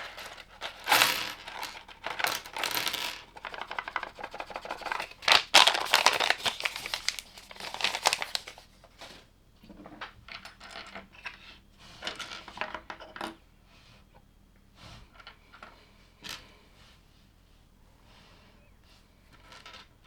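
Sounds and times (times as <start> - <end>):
plastic bag crinkling: 0.0 - 1.8, 4.8 - 8.6.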